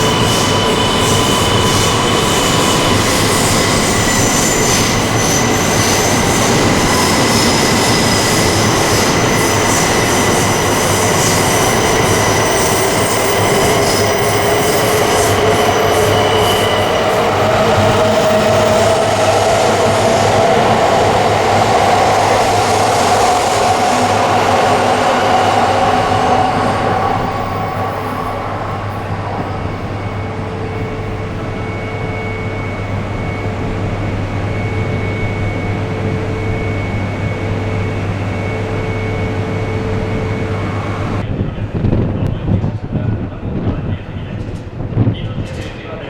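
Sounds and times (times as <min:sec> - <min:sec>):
train running with a whine: 0:00.0 - 0:46.0
wind rumbling on microphone: 0:41.0 - 0:46.0.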